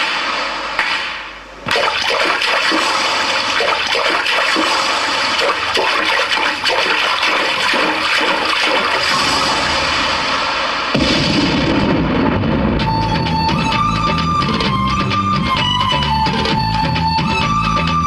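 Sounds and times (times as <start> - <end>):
rush of falling water: 2.6 - 11.0.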